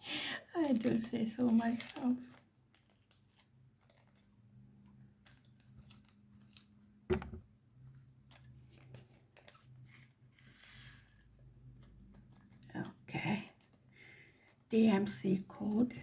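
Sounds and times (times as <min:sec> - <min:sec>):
plastic rustling: 0:00.6 - 0:10.6.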